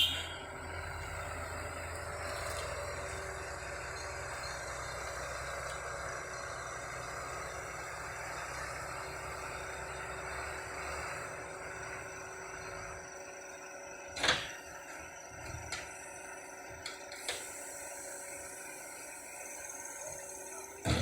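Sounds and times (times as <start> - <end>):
diesel engine running at low revs: 0.0 - 21.0.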